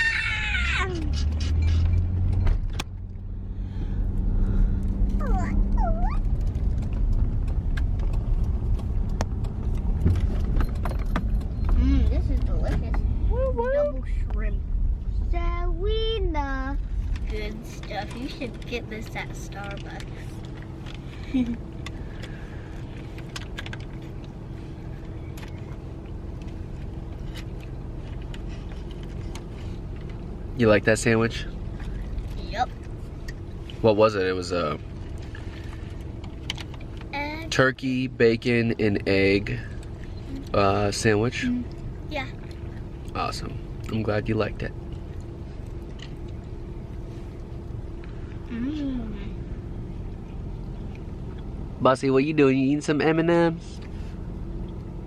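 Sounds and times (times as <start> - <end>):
short high whining cries: 0.0 - 1.8
car road rumble: 0.0 - 55.0.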